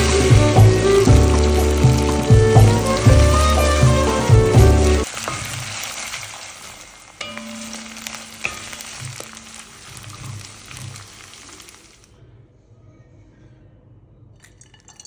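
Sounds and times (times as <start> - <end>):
food sizzling in oil: 0.0 - 12.1
wooden spatula scraping and tapping: 7.2 - 11.8.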